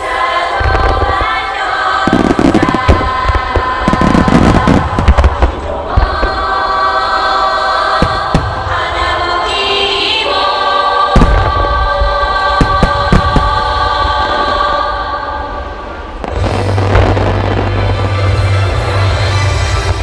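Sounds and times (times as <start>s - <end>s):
fireworks shells booming: 0.6s - 6.6s, 7.9s - 9.1s, 11.1s - 14.8s, 15.6s - 19.2s.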